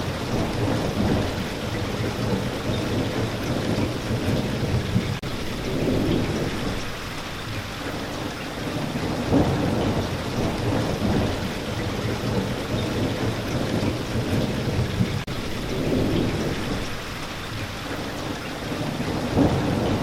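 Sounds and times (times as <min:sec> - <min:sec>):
low rolling thunder: 0:00.0 - 0:18.0, 0:18.6 - 0:20.0
steady rain falling: 0:00.0 - 0:20.0.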